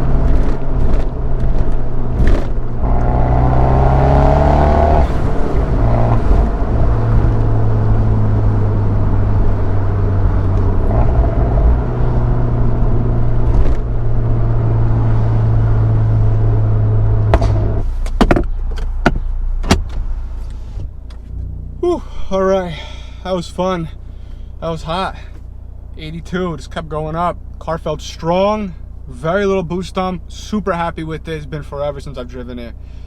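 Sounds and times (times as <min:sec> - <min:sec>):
exhaust pops: 0:00.0 - 0:22.4
car engine running hard: 0:00.0 - 0:33.0.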